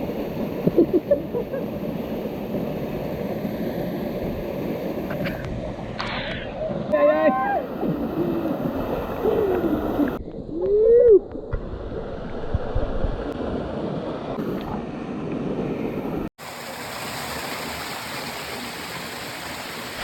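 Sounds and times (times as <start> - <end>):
waterfall rushing: 16.4 - 20.0.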